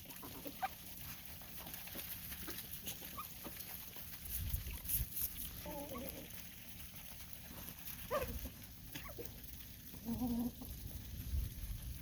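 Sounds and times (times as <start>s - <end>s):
farm animals calling: 0.0s - 11.0s.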